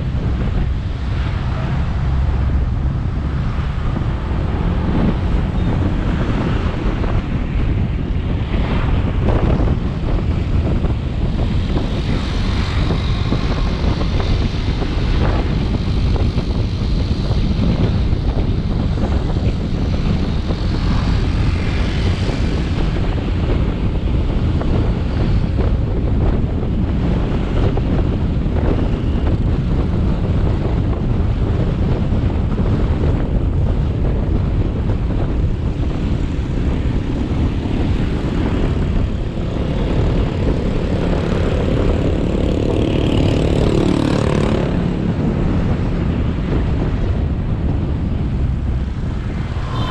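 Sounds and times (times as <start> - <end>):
wind rumble on microphone: 0.0 - 49.9.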